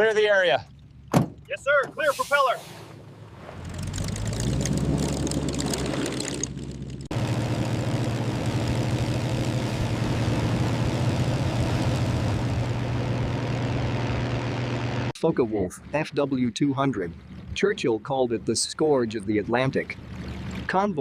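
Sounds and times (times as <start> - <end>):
propeller engine drone: 0.0 - 21.0
propeller engine starting up: 1.8 - 15.1, 19.9 - 20.8.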